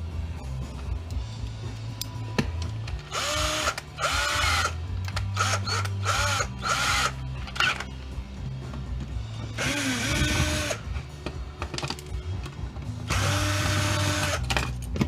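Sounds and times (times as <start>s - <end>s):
cordless drill motor whine: 3.1s - 7.2s, 9.6s - 10.8s, 13.1s - 14.4s.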